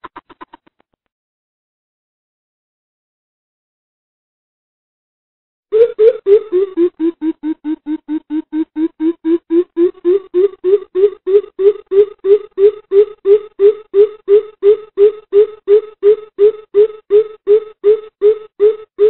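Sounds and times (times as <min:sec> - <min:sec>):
bird deep hooting calls: 0:05.8 - 0:19.0.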